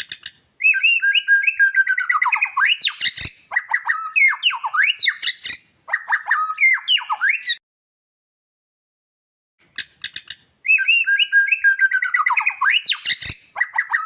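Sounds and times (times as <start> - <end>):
sharp bird clicks: 0.0 - 0.8, 9.7 - 14.0
bird singing whistled notes: 0.0 - 7.6, 9.8 - 14.0.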